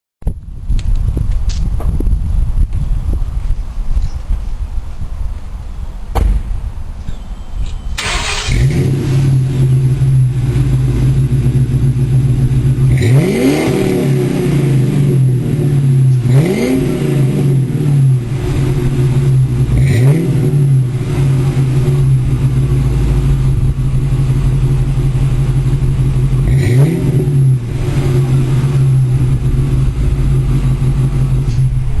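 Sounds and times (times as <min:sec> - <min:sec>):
engine revving: 0:07.7 - 0:32.0
car engine idling loudly: 0:08.0 - 0:16.3, 0:16.9 - 0:32.0.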